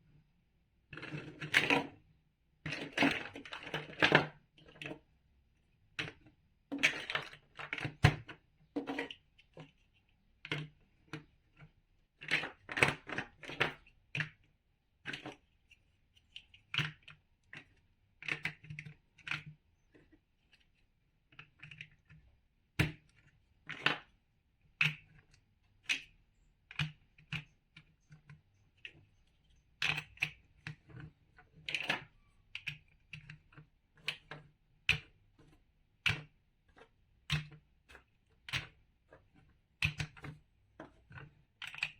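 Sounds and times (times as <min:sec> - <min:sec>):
plastic blocks clicking together: 0:41.0 - 0:41.9.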